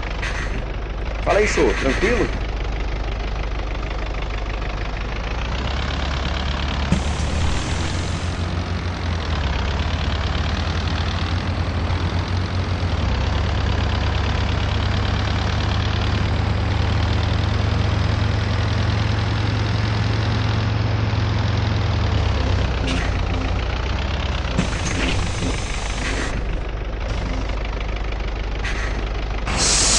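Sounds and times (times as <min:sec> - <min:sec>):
bus diesel engine running: 0:00.0 - 0:29.9.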